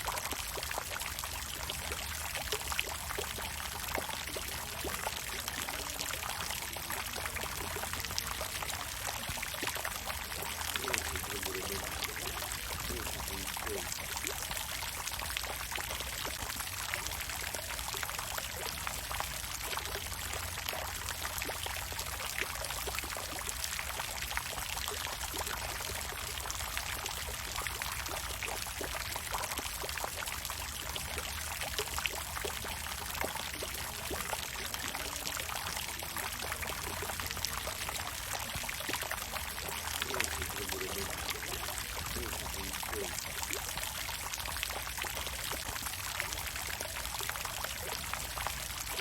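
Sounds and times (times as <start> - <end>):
water fountain splashing: 0.0 - 49.0.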